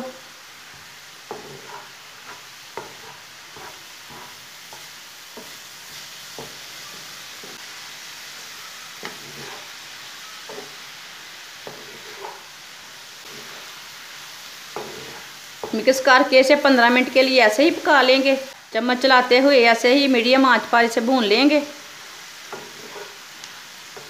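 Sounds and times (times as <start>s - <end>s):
food sizzling in a pan: 0.0s - 24.0s
wooden spatula stirring: 0.7s - 7.7s, 9.0s - 9.8s, 11.6s - 12.5s, 13.2s - 13.8s, 14.7s - 16.0s, 21.9s - 23.3s.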